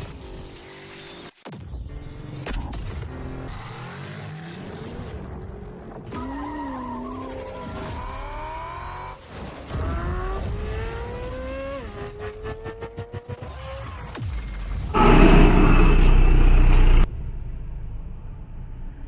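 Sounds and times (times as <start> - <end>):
car engine and transmission whine: 10.4 - 19.0.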